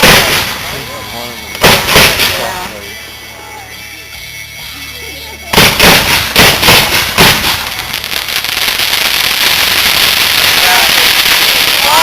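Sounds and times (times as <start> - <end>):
fireworks sharp bangs: 0.0 - 2.8, 5.5 - 12.0
fireworks crackling hiss: 0.0 - 3.8, 4.8 - 12.0.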